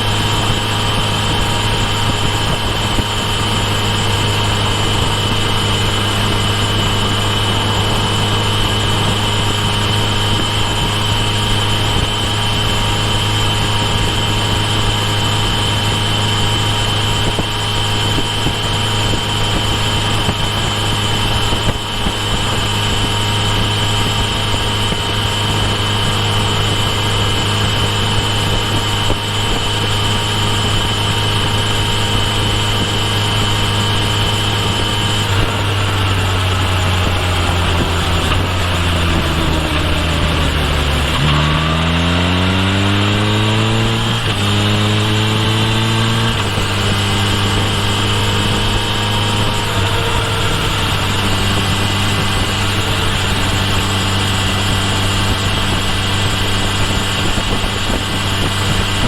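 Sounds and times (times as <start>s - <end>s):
high engine whine: 0.0s - 59.0s
motorcycle engine droning: 0.0s - 59.0s.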